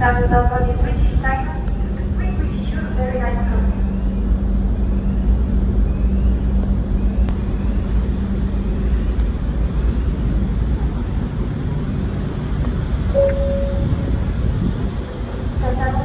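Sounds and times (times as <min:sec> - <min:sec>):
ship engines rumbling: 0:00.0 - 0:16.0
brief click: 0:13.2 - 0:13.5.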